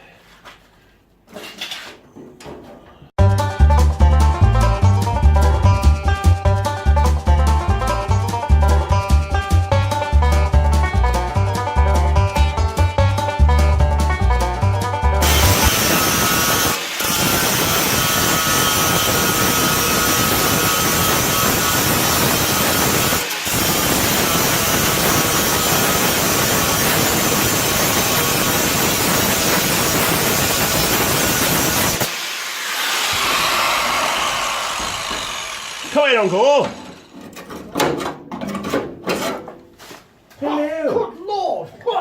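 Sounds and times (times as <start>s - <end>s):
angle grinder grinding steel: 15.2s - 37.3s.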